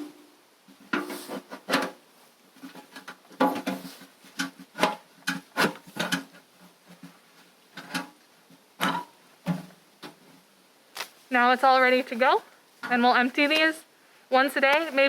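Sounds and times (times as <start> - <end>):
bucket cap knocking and clattering: 0.9 - 2.0, 2.6 - 7.2, 7.8 - 8.2, 8.8 - 10.2.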